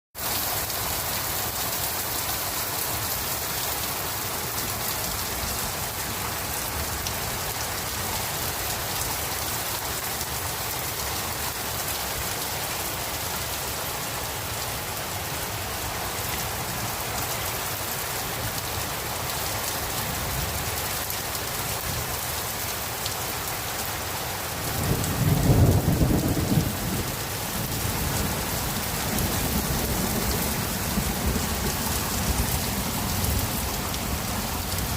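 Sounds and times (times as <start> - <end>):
heavy rain pouring: 0.2 - 34.9
low rumble of thunder: 24.7 - 32.8.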